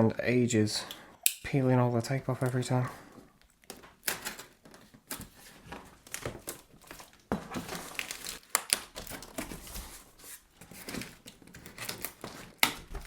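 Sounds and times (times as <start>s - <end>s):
packaging crinkling: 3.7s - 13.0s.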